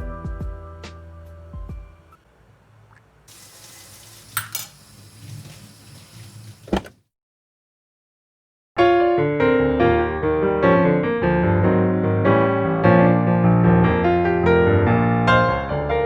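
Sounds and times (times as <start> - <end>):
tap water running into sink: 2.9 - 7.0.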